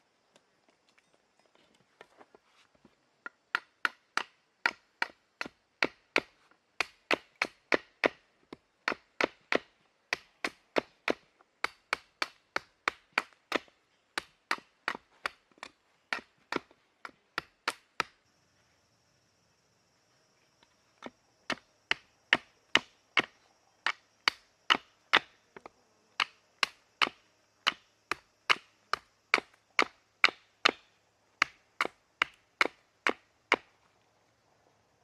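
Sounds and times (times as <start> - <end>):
firewood being chopped: 3.2 - 18.2, 21.0 - 25.3, 26.2 - 33.7.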